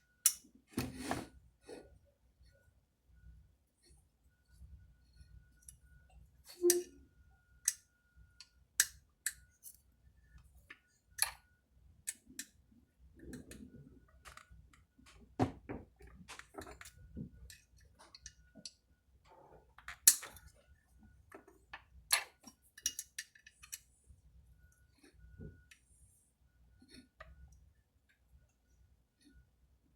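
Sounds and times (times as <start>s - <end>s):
metal tools clicking and clinking: 19.8s - 20.5s, 22.1s - 23.8s.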